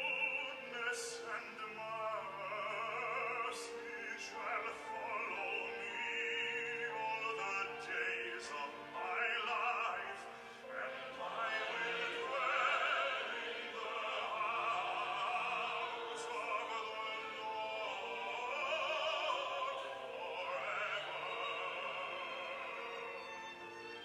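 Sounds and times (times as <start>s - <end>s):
operatic singing with vibrato: 0.0s - 24.0s.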